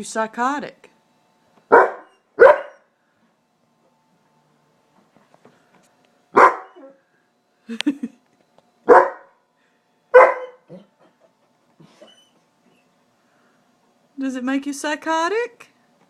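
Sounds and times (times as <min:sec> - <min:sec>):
dog barking: 0:01.7 - 0:02.9, 0:06.4 - 0:07.0, 0:08.9 - 0:09.4, 0:10.2 - 0:10.9.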